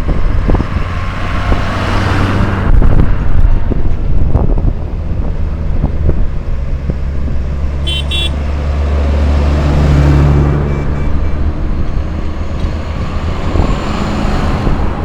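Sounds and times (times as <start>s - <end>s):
engine humming: 0.0s - 15.0s
short high horn toots: 7.8s - 8.4s.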